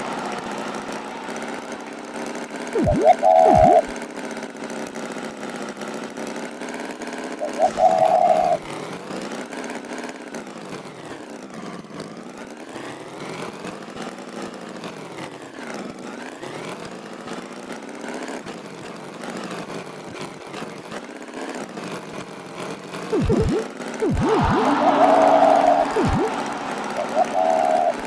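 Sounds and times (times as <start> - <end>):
cartoon tractor engine running: 2.8 - 3.9, 23.2 - 28.0.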